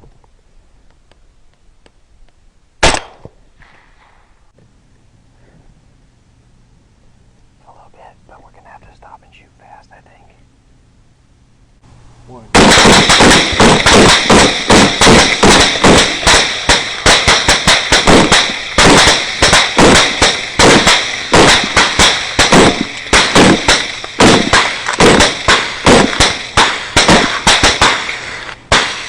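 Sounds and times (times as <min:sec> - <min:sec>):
rapid gunfire: 0:12.6 - 0:29.0.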